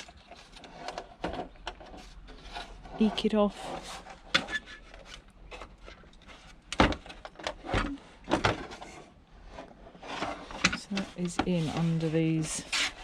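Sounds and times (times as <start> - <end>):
plastic casing handling noise: 4.0 - 12.0.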